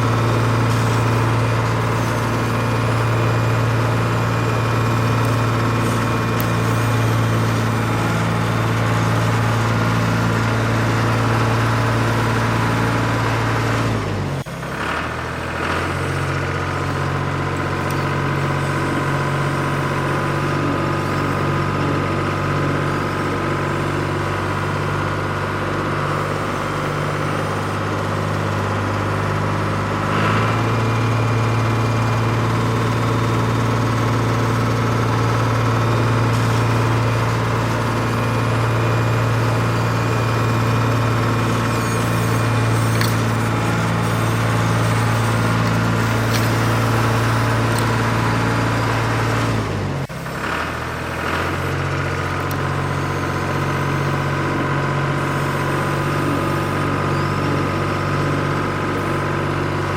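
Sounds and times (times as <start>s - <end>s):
model vehicle motor humming: 0.0s - 13.9s, 27.5s - 50.3s.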